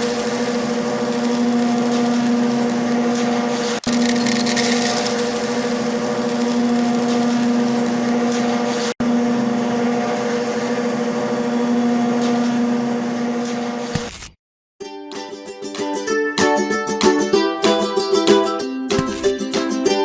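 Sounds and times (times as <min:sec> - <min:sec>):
small motor whining: 0:00.0 - 0:13.8.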